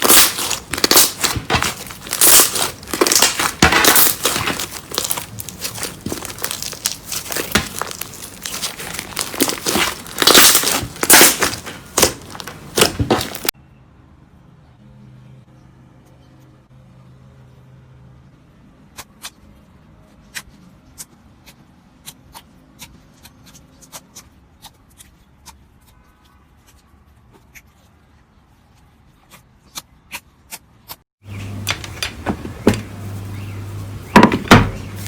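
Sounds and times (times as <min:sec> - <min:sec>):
slime clicking and popping: 0:00.0 - 0:13.5.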